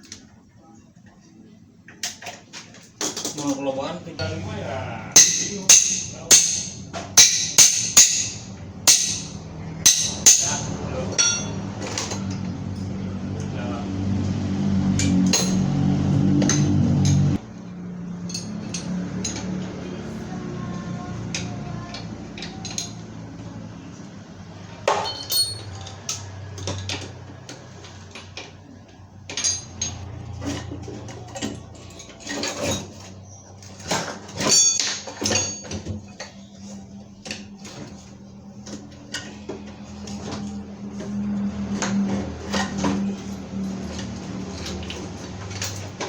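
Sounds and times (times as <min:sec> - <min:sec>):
metal tools clinking and knocking: 0:05.2 - 0:12.9, 0:18.2 - 0:19.7, 0:22.4 - 0:23.2, 0:24.8 - 0:28.4, 0:29.3 - 0:36.4, 0:41.6 - 0:46.0.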